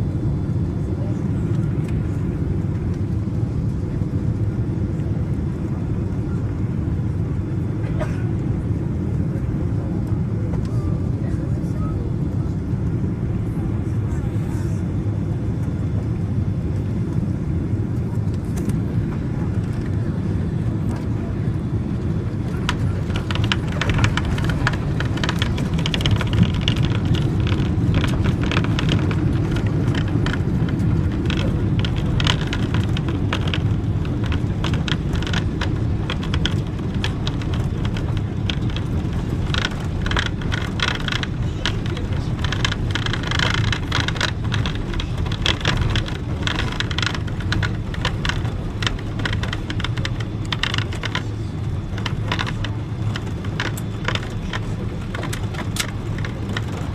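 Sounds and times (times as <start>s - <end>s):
airliner cabin rumble: 0.0s - 56.9s
clicks and rattles: 20.9s - 56.9s.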